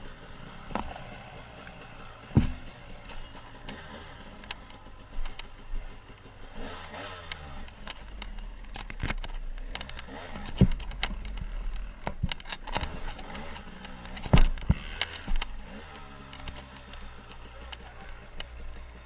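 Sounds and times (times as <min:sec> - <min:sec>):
dirt bike engine revving: 0:00.0 - 0:19.0
sharp knocks and clatter: 0:00.0 - 0:19.0.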